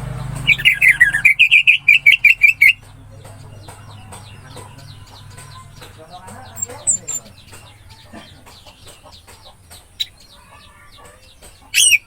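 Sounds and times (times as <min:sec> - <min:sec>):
thrush singing: 0:00.0 - 0:12.0.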